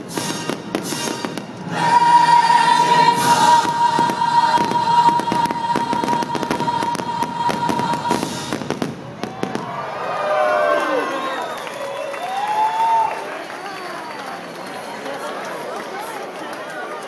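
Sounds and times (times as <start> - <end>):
music with long steady note: 0.0 - 8.6
fireworks bursting: 0.0 - 9.9.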